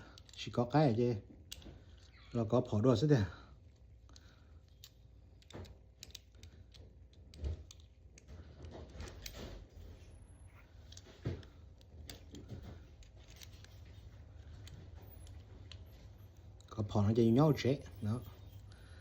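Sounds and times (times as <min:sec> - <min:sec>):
small clicks and rattles of handling: 0:00.0 - 0:19.0.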